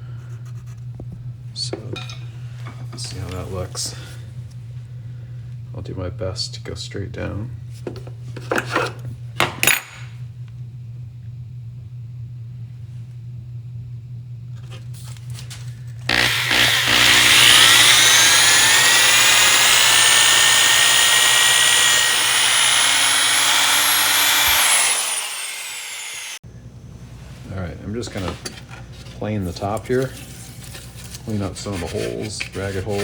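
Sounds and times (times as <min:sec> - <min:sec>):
electric drill boring into wood: 0:16.1 - 0:26.4.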